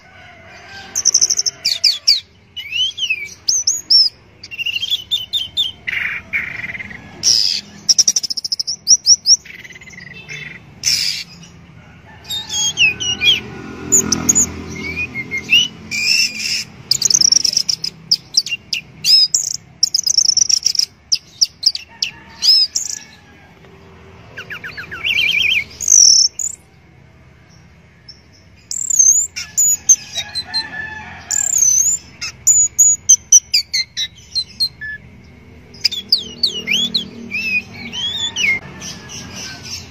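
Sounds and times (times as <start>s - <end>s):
thrush singing whistled phrases: 12.6s - 21.8s.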